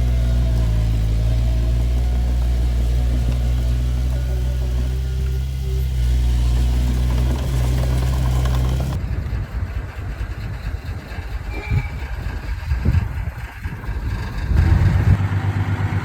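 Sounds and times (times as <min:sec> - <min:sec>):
diesel engine running: 0:00.0 - 0:16.0
rough uneven engine rumble: 0:00.0 - 0:16.0.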